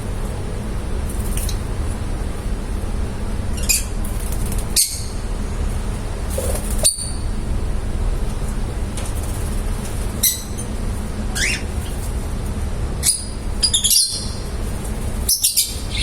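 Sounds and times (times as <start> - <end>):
lovebirds chirping: 15.3 - 16.0.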